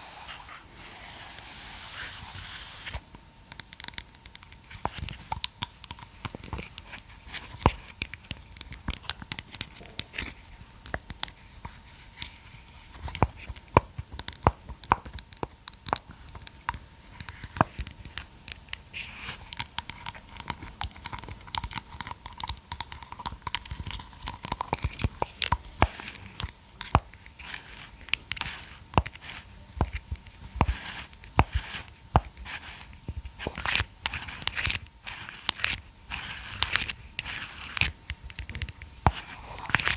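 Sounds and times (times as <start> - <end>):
massage roller clicking and tapping: 2.9 - 39.9
scratching and crinkling: 17.2 - 39.9.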